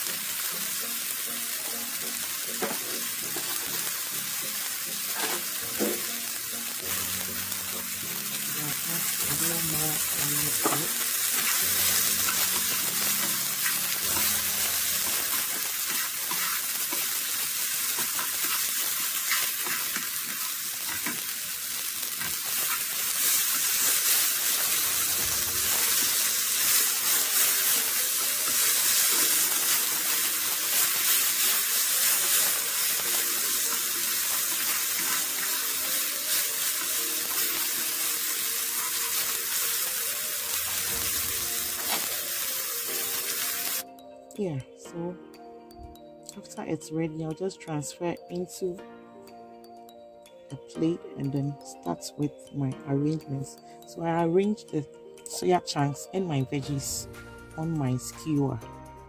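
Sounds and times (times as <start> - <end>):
food sizzling in a frying pan: 0.0 - 43.9.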